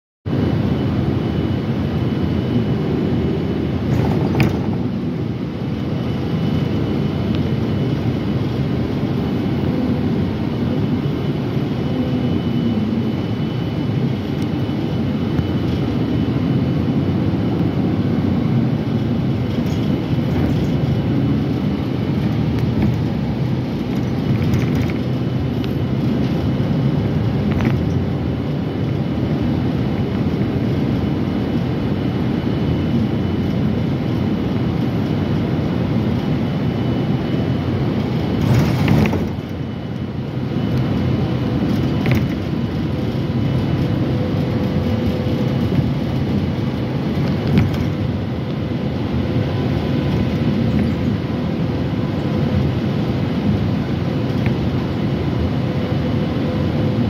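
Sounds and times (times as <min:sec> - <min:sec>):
faint steady whine: 0:00.3 - 0:57.0
metro train rumble: 0:16.9 - 0:29.2, 0:36.7 - 0:52.3.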